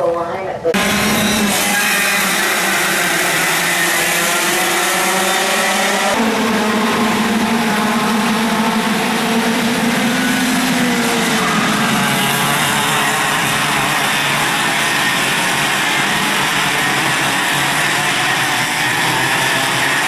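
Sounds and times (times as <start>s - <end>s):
kart engine at high revs: 0.8s - 20.0s.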